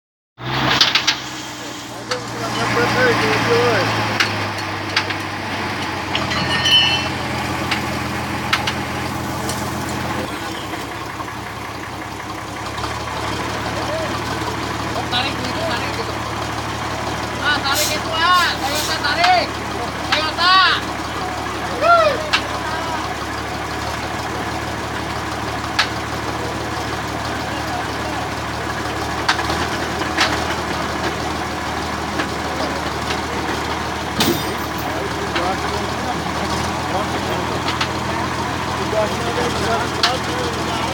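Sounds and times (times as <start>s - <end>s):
truck engine humming: 0.4s - 40.9s
sharp clicks and knocks: 4.2s - 7.9s, 8.5s - 8.9s.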